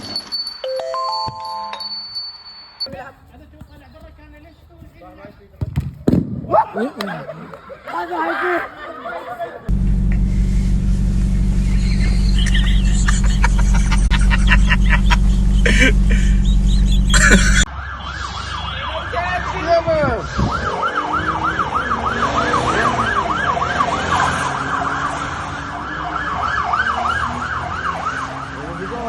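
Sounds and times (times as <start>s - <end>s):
loud low rumble with clicks: 9.7s - 17.7s
siren yelping: 11.7s - 29.0s.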